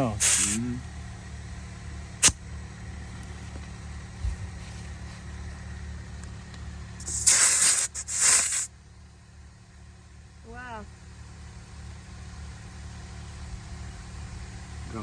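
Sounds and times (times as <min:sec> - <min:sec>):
air hissing into tyre: 0:00.0 - 0:00.8, 0:02.2 - 0:02.4, 0:07.0 - 0:08.8
motor humming: 0:00.0 - 0:15.0.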